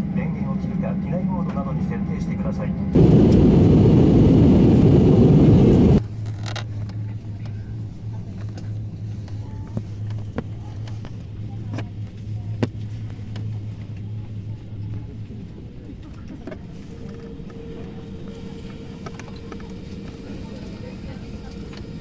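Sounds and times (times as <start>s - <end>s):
rushing engine and air noise: 2.8s - 6.1s
steady low hum: 2.9s - 6.1s.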